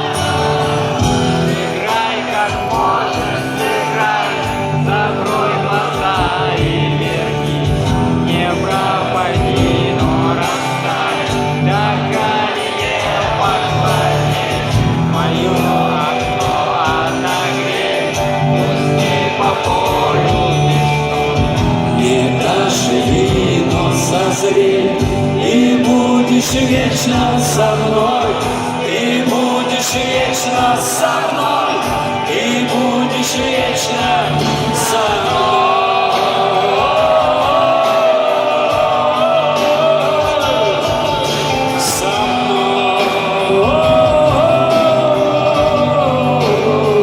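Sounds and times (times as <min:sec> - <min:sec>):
crowd singing along: 0:00.0 - 0:47.0
rock band playing: 0:00.0 - 0:47.0.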